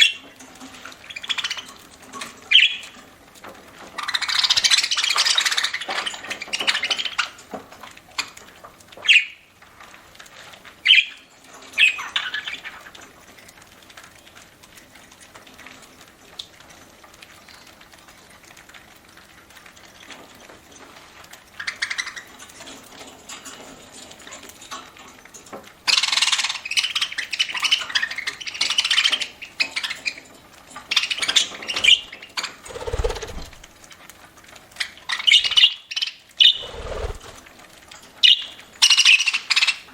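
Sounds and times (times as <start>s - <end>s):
budgerigars chirping and squawking: 31.1s - 33.6s, 35.1s - 37.4s.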